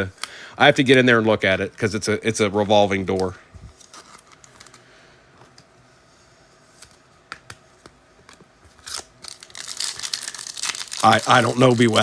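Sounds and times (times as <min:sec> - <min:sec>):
foil wrapper crinkling: 0:03.0 - 0:04.8, 0:08.7 - 0:12.0.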